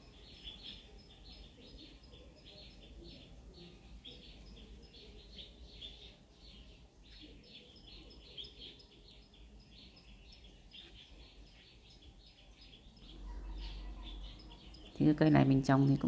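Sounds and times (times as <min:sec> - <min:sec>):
small birds chirping faintly: 0:00.0 - 0:16.0.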